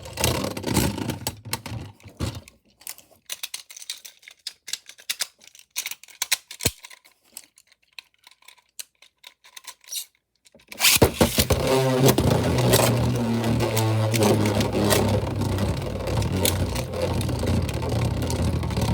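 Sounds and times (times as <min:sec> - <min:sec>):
small plastic clicks: 0:00.1 - 0:18.9
spinning tops whirring: 0:10.8 - 0:18.9.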